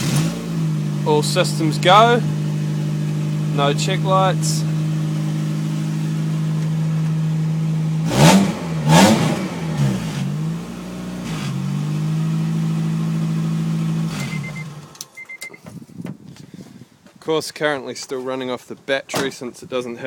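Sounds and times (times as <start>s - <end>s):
car engine idling and revving: 0.0s - 16.5s
short electronic beeps: 14.2s - 15.6s.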